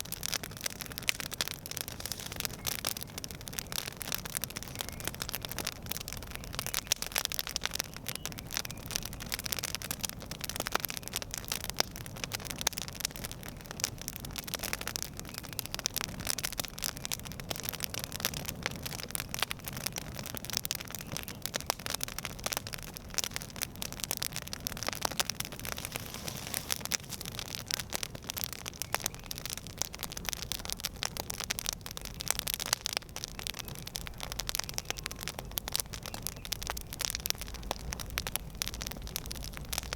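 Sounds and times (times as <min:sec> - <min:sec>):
campfire crackling and popping: 0:00.0 - 0:39.9
fire hiss: 0:01.3 - 0:03.0, 0:25.4 - 0:27.6.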